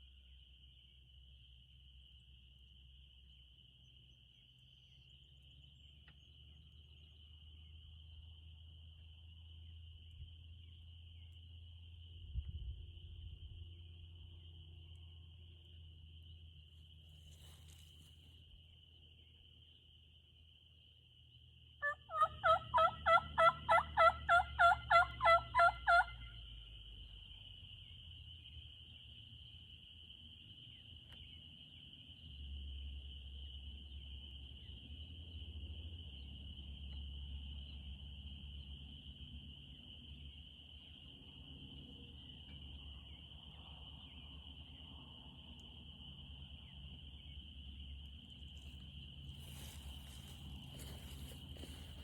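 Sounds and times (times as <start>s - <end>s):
turkey yelps: 21.8s - 26.3s.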